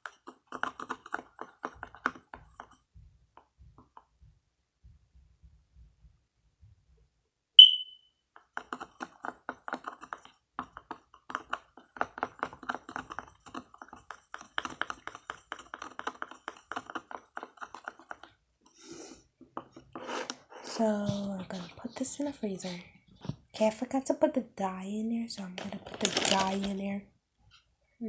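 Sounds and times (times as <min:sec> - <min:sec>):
short high ping: 0:07.6 - 0:08.1.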